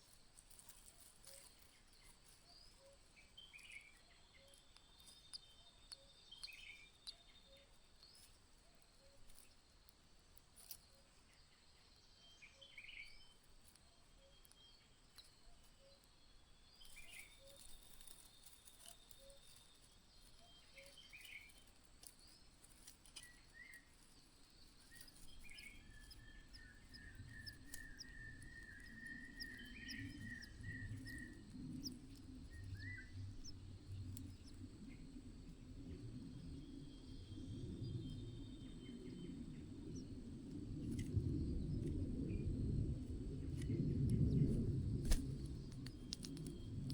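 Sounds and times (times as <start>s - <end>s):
faint insect ticking: 0.0s - 12.0s, 12.6s - 37.3s
bird chirps: 0.9s - 9.5s, 14.1s - 22.4s, 23.1s - 35.2s
low rumble: 25.4s - 46.9s.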